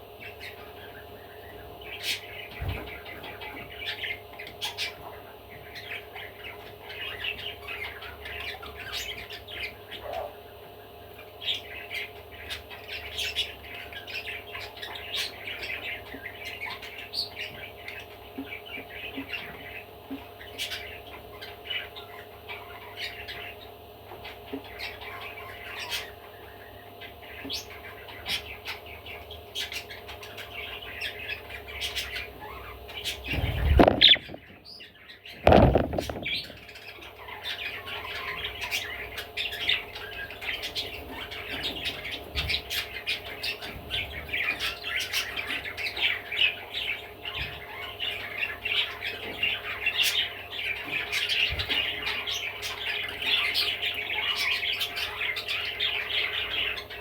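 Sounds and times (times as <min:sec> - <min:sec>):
budgerigar chattering: 0:29.6 - 0:34.8
loud thumps: 0:33.4 - 0:34.6, 0:35.4 - 0:36.5.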